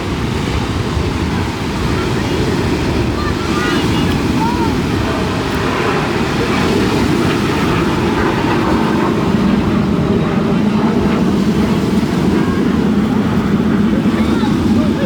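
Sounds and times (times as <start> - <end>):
aircraft rumbling drone: 0.0 - 15.0
wind buffeting microphone: 0.0 - 15.0.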